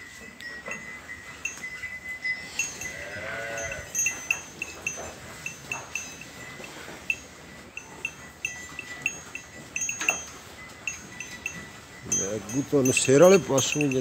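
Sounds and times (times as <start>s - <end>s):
high chiming clinks: 0.0s - 14.0s
farm animal call: 2.3s - 9.2s.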